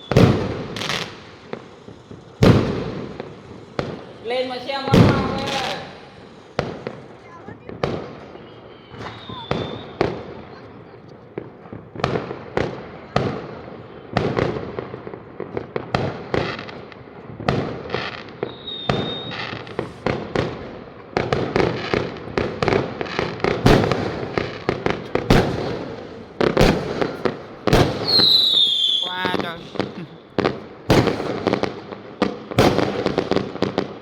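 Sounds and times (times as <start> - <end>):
fireworks bangs: 0.0 - 34.0
fireworks crackling: 0.0 - 34.0
short high whistle: 8.4 - 10.0, 18.5 - 19.8.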